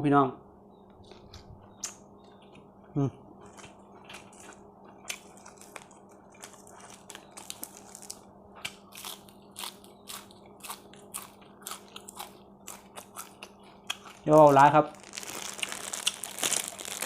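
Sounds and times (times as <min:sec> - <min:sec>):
faint steady hum: 0:00.0 - 0:17.0
chewing clicks and smacks: 0:01.1 - 0:02.6, 0:03.4 - 0:07.8, 0:08.6 - 0:14.3.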